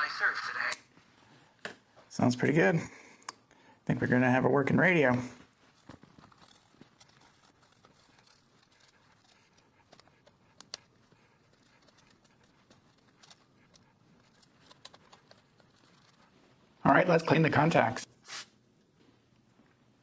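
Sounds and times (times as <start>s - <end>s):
faint clicks and taps: 5.4s - 16.5s.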